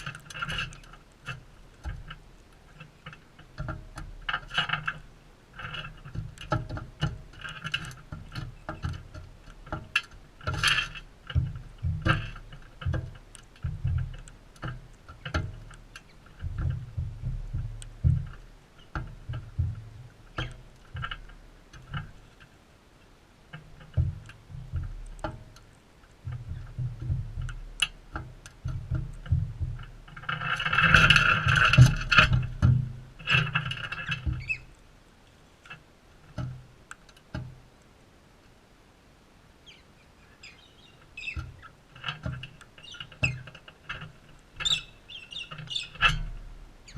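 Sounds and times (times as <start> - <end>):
low rumbling thumps: 11.1 - 21.8, 26.2 - 30.2
birds screeching: 34.4 - 34.7, 39.6 - 41.7, 44.6 - 46.2.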